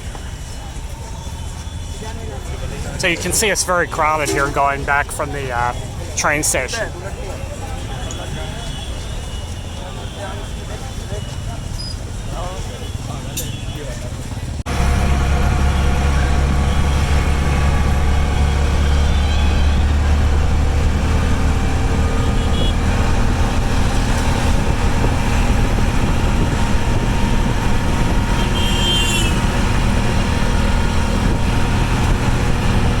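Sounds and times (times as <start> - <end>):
passenger train rumbling: 2.3 - 6.9, 14.7 - 33.0.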